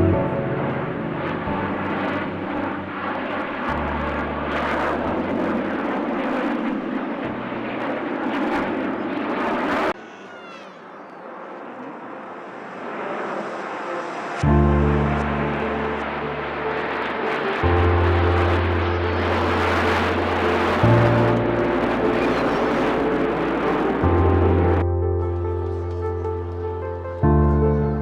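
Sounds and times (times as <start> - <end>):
aircraft engine rushing: 0.0 - 24.8.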